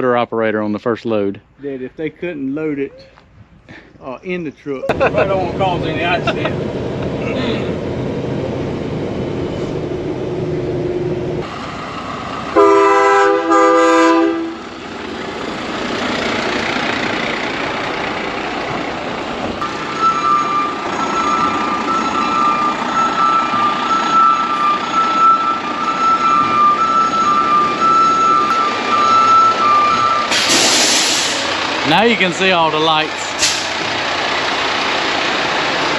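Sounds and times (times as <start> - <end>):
heavy truck running: 3.7 - 35.9
multi-tone air horn: 12.6 - 14.6
high pulsing tone: 19.6 - 30.4.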